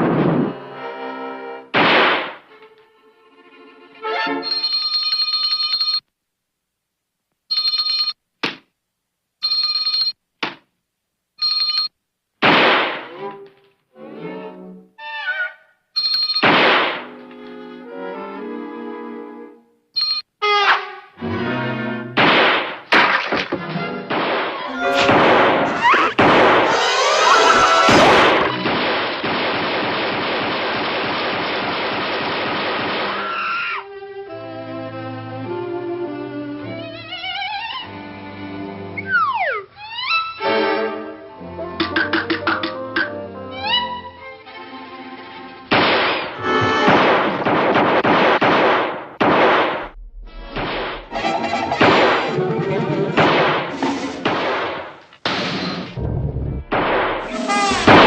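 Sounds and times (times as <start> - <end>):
telephone bell ringing: 4.4 - 6.1, 7.5 - 8.2, 9.4 - 10.2, 11.4 - 11.9, 16.0 - 16.4, 20.0 - 20.3
loud crash: 24.1 - 33.2, 45.7 - 58.0
rushing crash noise: 24.7 - 29.2, 49.2 - 52.5.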